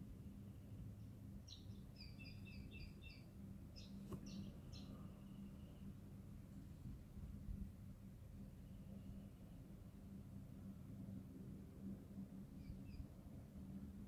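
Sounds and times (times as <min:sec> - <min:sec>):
low steady hum: 0:00.0 - 0:14.0
bird chirps: 0:01.0 - 0:05.8, 0:12.6 - 0:13.1.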